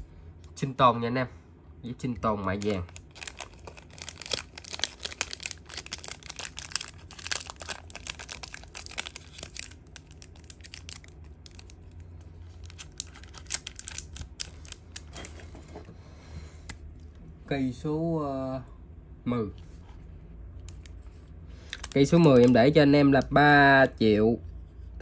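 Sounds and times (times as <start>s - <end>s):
steady low hum: 0.0s - 25.0s
packaging crinkling: 2.5s - 15.4s, 21.7s - 22.8s.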